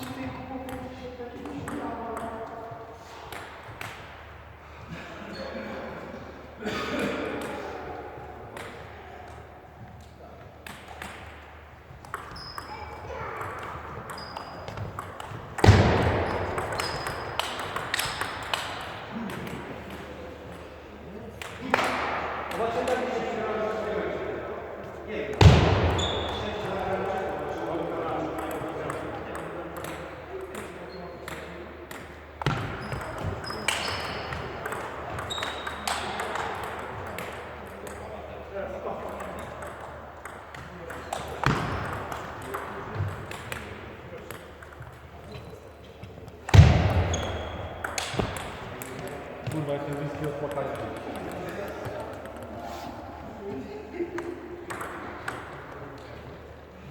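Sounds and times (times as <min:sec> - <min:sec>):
table tennis ball hits: 0:10.6 - 0:20.6, 0:28.3 - 0:38.1, 0:39.0 - 0:45.0, 0:46.4 - 0:51.5, 0:54.7 - 0:55.6
shoe squeaks: 0:12.3 - 0:13.2, 0:14.1 - 0:15.0, 0:16.2 - 0:17.4, 0:26.0 - 0:26.5, 0:32.7 - 0:34.5, 0:35.2 - 0:36.0, 0:47.1 - 0:47.9.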